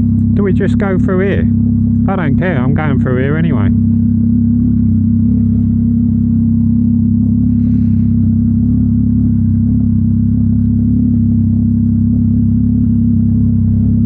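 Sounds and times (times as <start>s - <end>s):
motorcycle engine running steadily: 0.0s - 14.0s.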